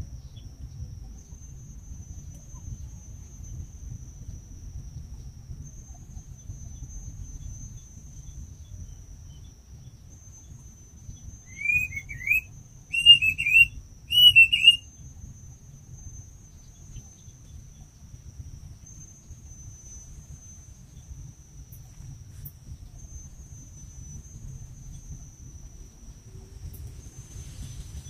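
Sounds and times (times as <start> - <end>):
insect trilling: 10.2 - 15.0
bird whistling: 11.4 - 14.8.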